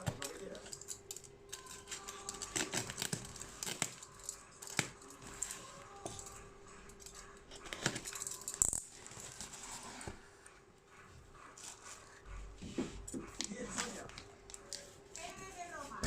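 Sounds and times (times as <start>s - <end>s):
packaging rustling: 0.0s - 6.4s, 7.5s - 10.3s.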